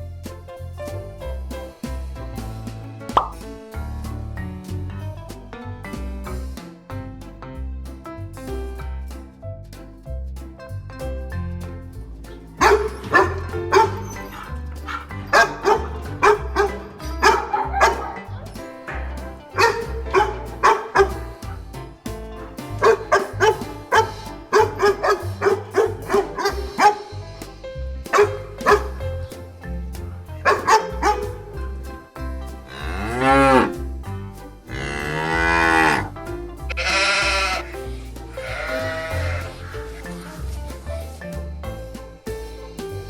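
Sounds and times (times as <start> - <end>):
background music: 0.0 - 43.0
dog yelping: 12.6 - 14.4, 15.3 - 18.3, 22.8 - 27.0
cow mooing: 32.7 - 33.7, 34.7 - 36.1.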